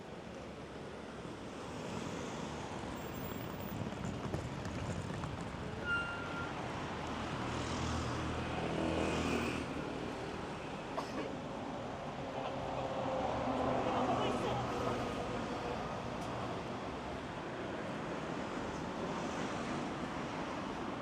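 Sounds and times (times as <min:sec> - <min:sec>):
rushing traffic: 0:00.2 - 0:21.0.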